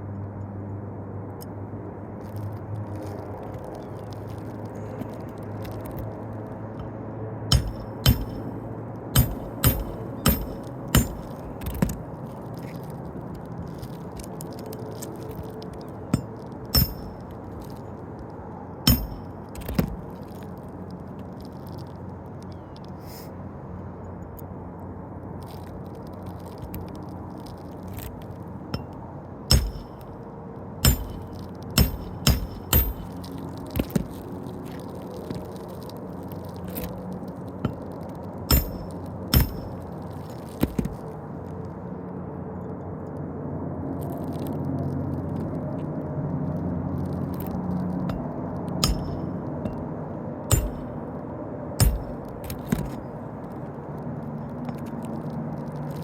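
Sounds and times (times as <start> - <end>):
sharp clicks of roof shingles: 4.1 - 21.8, 30.8 - 41.2, 51.8 - 53.7.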